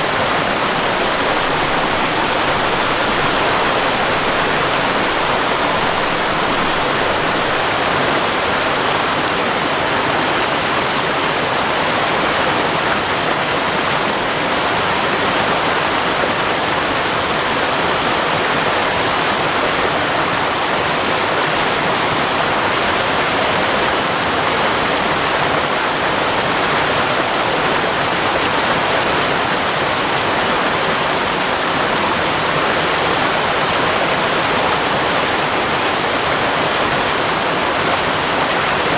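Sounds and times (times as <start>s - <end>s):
waterfall pouring: 0.0s - 9.0s.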